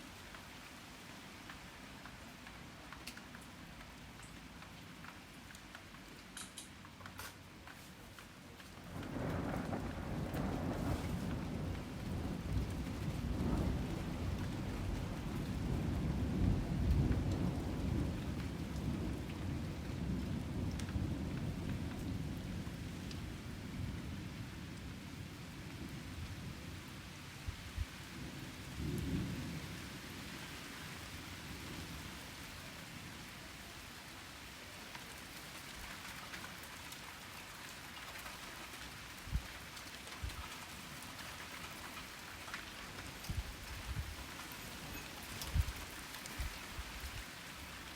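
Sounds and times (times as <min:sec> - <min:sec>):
heavy rain: 0:00.0 - 0:47.9
water drip ticks: 0:01.4 - 0:07.2
thunder rumbling: 0:08.9 - 0:24.1.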